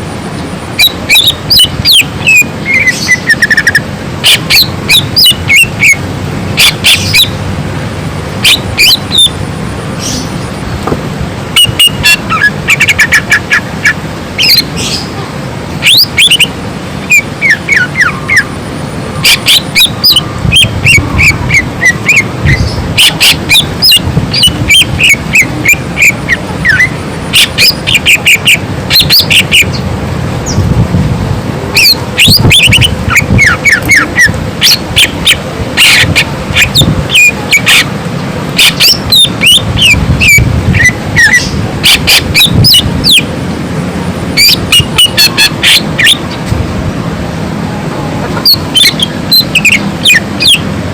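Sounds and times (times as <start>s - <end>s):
bird singing chip notes and whistles: 0.7s - 6.0s, 6.6s - 7.4s, 8.4s - 9.4s, 11.6s - 15.1s, 15.8s - 18.6s, 19.2s - 29.8s, 31.8s - 37.9s, 38.6s - 43.3s, 44.4s - 46.3s, 48.5s - 50.6s.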